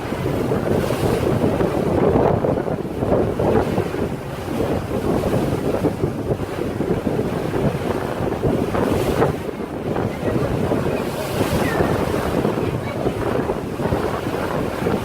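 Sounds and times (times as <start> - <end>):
water rushing: 0.0 - 15.0
wind buffeting microphone: 0.0 - 15.0.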